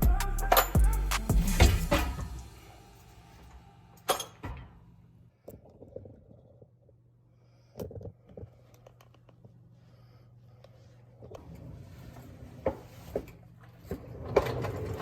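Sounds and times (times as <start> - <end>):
metal tools clinking: 4.0 - 4.6.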